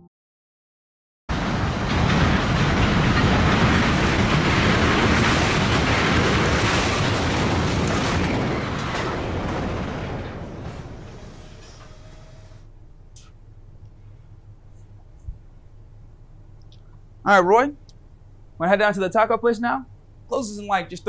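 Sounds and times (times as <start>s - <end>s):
train passing close by: 1.3s - 14.6s.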